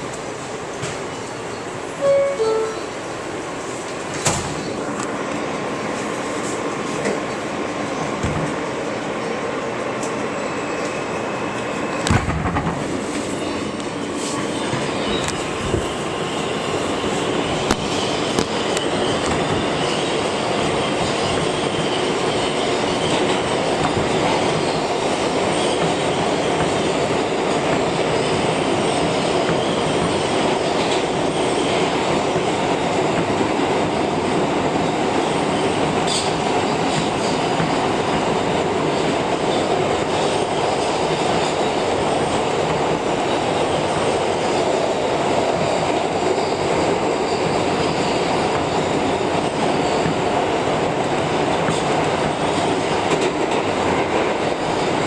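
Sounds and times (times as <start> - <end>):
wheels rumbling on rail: 0.0 - 55.0
high wheel squeal: 45.6 - 50.3.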